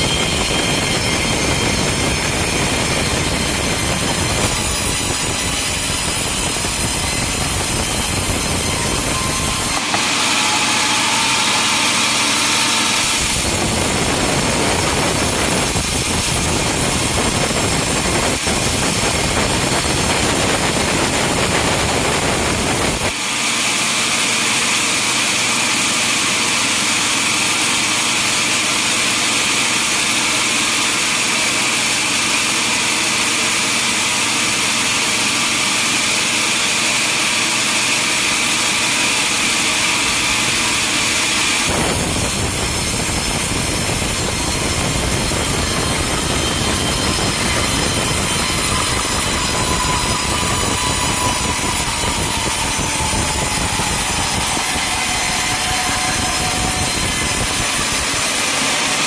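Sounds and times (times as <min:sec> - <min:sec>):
high-pitched saw sound: 0:00.0 - 0:59.0
sawmill machinery running: 0:00.0 - 0:59.0.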